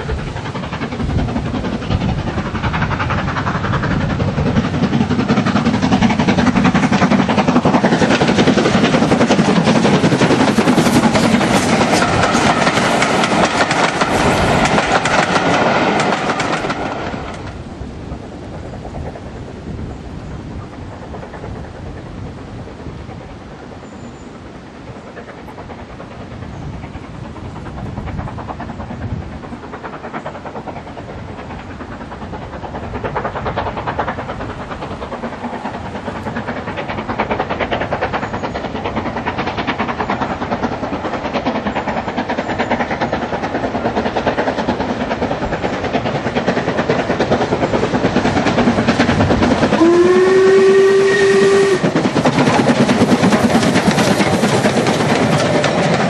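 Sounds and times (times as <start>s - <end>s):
steam locomotive exhaust: 0.0s - 56.0s
steam whistle: 49.8s - 52.0s.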